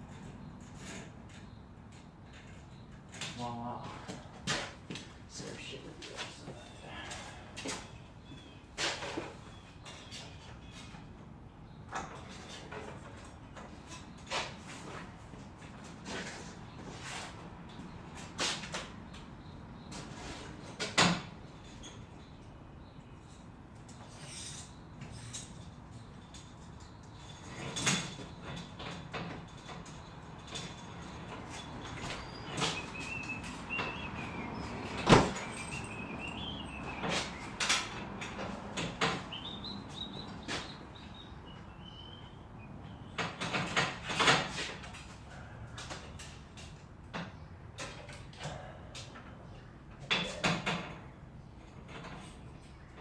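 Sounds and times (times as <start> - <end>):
garage door clunks and rattles: 17.8 - 22.4, 24.0 - 42.1, 42.9 - 53.0.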